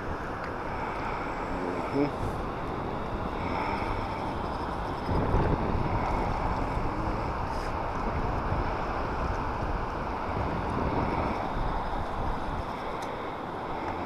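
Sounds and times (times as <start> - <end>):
wind buffeting the microphone: 0.0 - 14.0.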